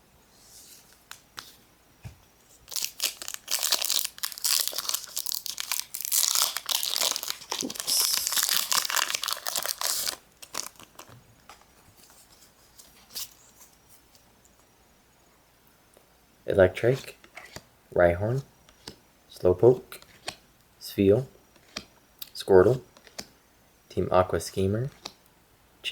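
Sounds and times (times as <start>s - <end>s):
foil wrapper tearing and crinkling: 2.6s - 11.1s.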